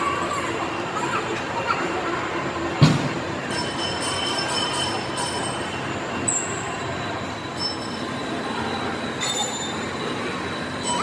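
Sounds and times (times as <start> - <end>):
steady mechanical noise: 0.0 - 11.0
faint high-pitched metallic squeals: 3.4 - 11.0.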